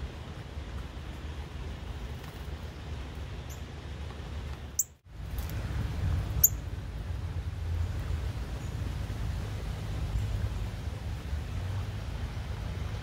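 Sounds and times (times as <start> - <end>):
steady low rumble: 5.1 - 13.0
bird chipping: 6.4 - 6.6.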